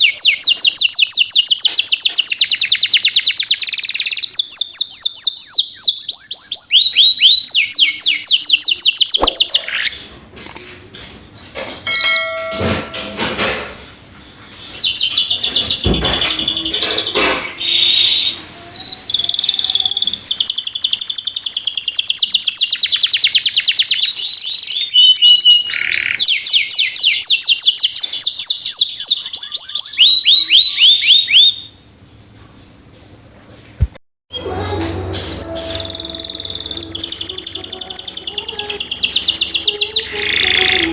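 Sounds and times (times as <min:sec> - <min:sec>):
canary singing rapid trills: 0:00.0 - 0:10.0, 0:14.8 - 0:31.7, 0:35.3 - 0:40.9.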